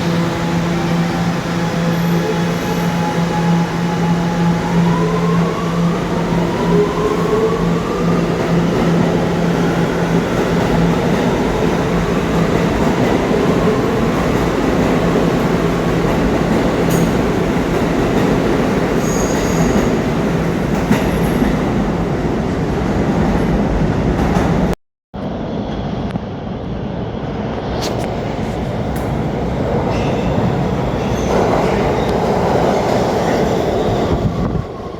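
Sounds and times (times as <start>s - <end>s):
subway traction motors whining: 0.0s - 22.7s.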